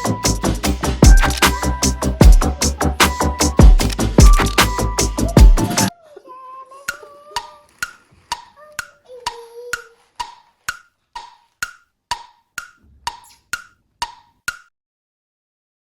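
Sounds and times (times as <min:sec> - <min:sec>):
wood-block-like ticking: 0:01.0 - 0:05.9, 0:06.8 - 0:14.7.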